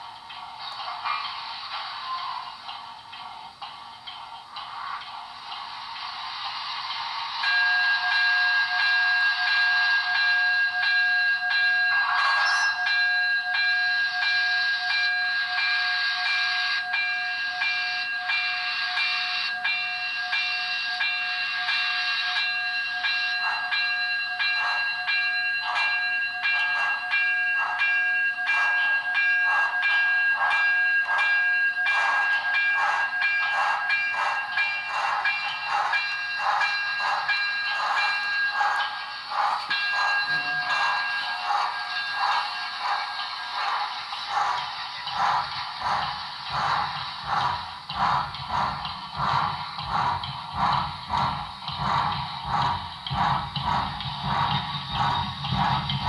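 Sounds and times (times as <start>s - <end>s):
steam locomotive chuffs: 0.0s - 56.0s
steam exhaust hiss: 4.4s - 8.1s, 40.6s - 56.0s
chime steam whistle: 7.3s - 56.0s.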